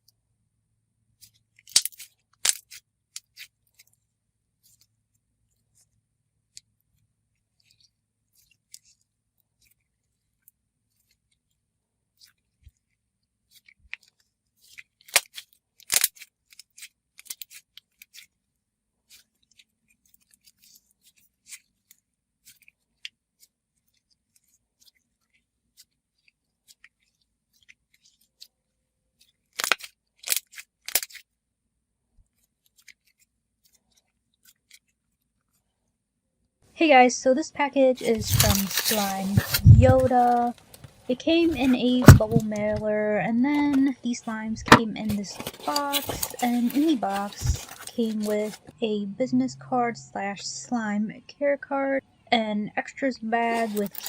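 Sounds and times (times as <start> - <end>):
slime crackling and popping: 1.6 - 3.5, 14.7 - 18.3, 29.5 - 31.3.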